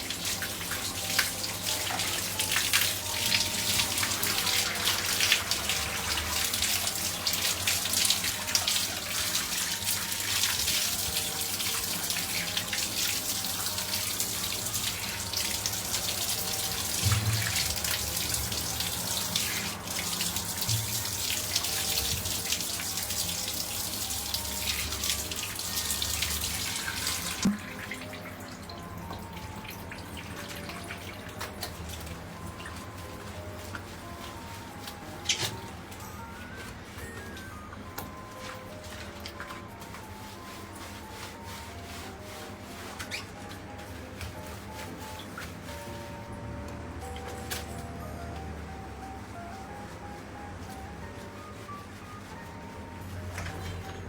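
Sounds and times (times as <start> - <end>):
water running from a tap: 0.0 - 45.7.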